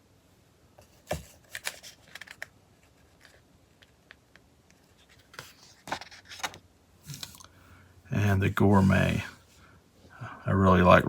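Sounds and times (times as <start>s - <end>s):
magazine pages rustling: 0.9s - 4.1s, 4.8s - 7.4s.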